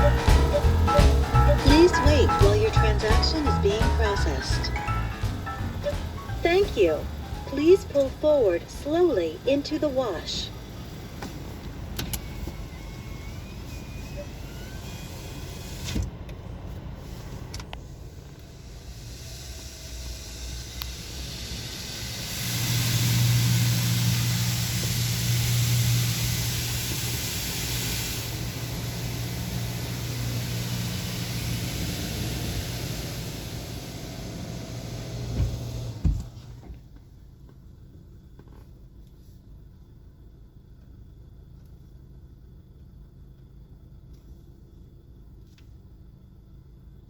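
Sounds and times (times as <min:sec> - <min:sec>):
car wash machine humming: 0:00.0 - 0:36.7
water spray hissing: 0:18.7 - 0:35.4.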